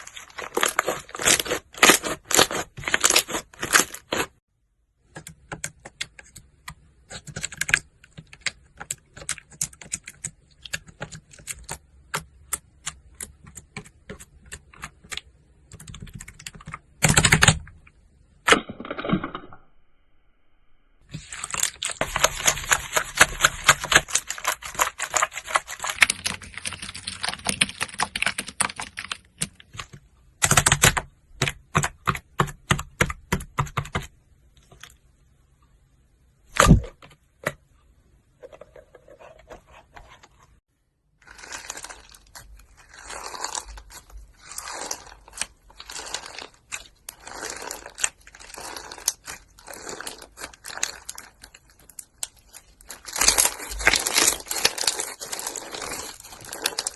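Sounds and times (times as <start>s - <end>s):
slime crinkling and crackling: 0.0s - 4.4s, 21.1s - 29.8s, 41.2s - 56.9s.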